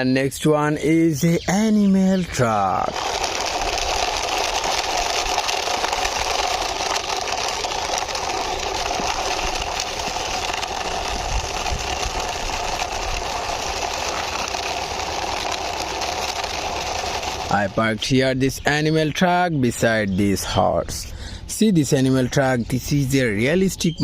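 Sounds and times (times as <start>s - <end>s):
toy truck motor drone: 2.0s - 18.5s.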